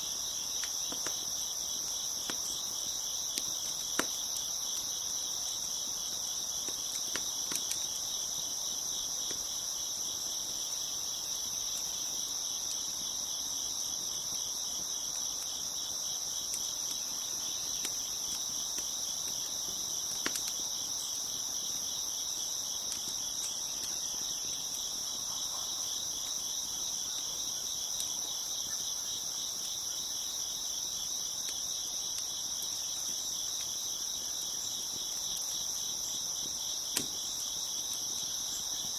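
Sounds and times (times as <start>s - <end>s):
crickets chirping: 0.0s - 38.9s
wood fire crackling: 0.0s - 38.9s.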